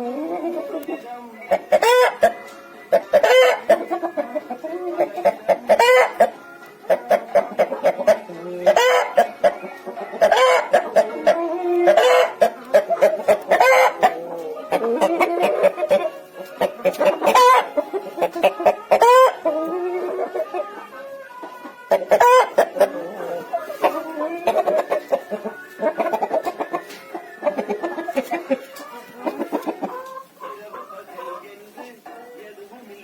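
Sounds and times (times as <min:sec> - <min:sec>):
chickens clucking and calling: 0:00.0 - 0:33.0.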